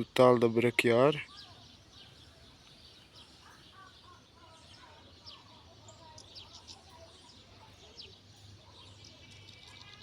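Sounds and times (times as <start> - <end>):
low warbling bird calls: 0.0 - 10.0
small birds chirping: 0.0 - 10.0.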